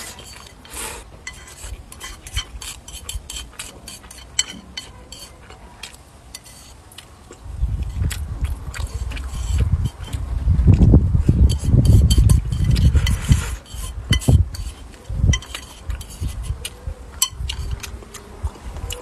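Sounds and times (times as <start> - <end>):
close-up chewing: 0.0 - 19.0
chopsticks tapping a plate: 1.3 - 6.7, 11.5 - 13.2, 13.8 - 16.2, 17.2 - 17.9.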